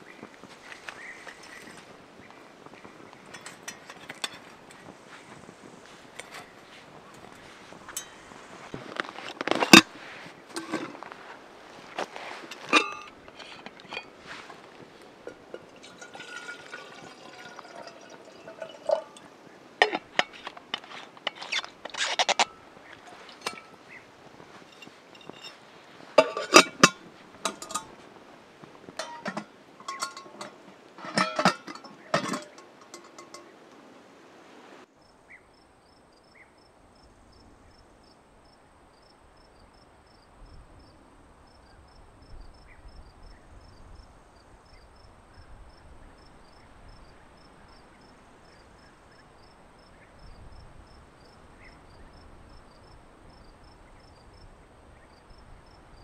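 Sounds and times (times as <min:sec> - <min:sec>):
crickets chirping: 0:00.0 - 0:56.0
hard objects clinking: 0:12.4 - 0:19.2, 0:19.8 - 0:23.9, 0:24.5 - 0:28.0, 0:29.0 - 0:33.7.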